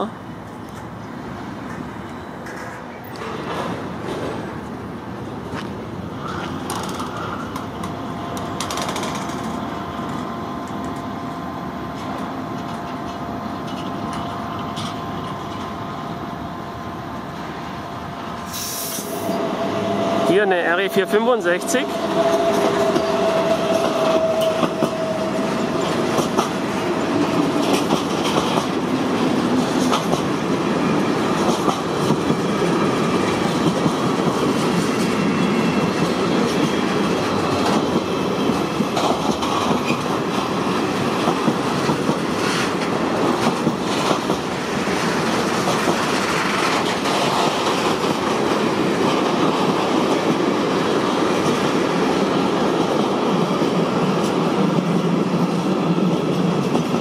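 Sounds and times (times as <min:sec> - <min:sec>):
freight train wheels rolling: 0:00.3 - 0:57.0
wheels clicking over rail joints: 0:06.3 - 0:11.1, 0:22.0 - 0:57.0
steady tone: 0:19.1 - 0:27.2.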